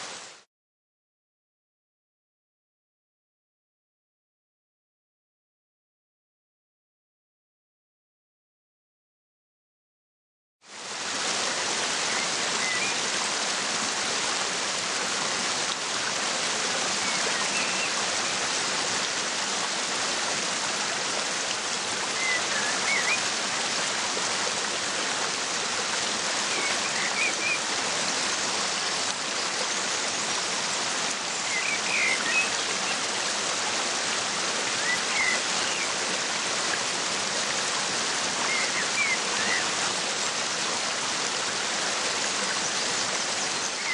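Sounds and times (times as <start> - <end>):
waterfall rushing: 10.8 - 43.9.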